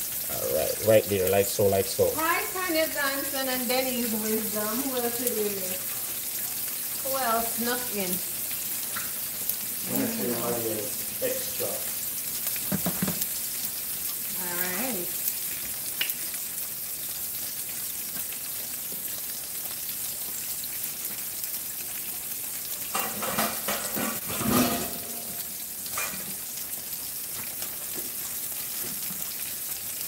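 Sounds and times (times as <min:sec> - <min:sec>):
food sizzling in pans: 0:00.0 - 0:30.0
knocks: 0:12.7 - 0:13.2.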